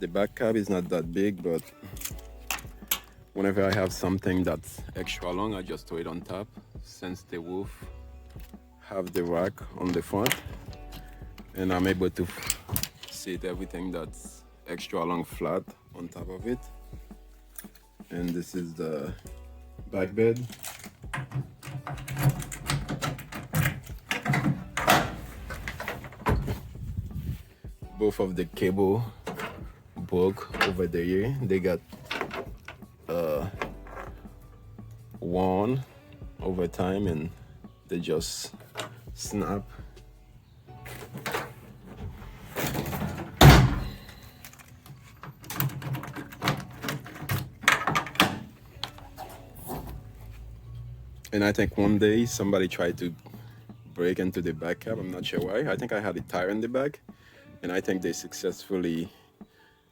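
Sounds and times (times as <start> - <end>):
pickup truck bed thunks and clanks: 21.1 - 26.8, 29.1 - 29.8, 31.9 - 32.8, 40.8 - 44.3, 45.3 - 48.6
tailgate knocks and rattles: 21.1 - 26.9, 32.0 - 32.8, 40.8 - 44.2, 45.3 - 50.0.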